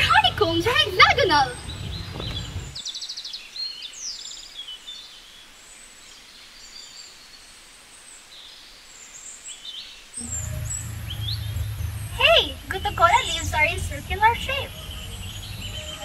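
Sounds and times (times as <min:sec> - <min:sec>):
birds chirping: 0:00.0 - 0:04.5, 0:09.1 - 0:16.0
low hum: 0:10.2 - 0:16.0.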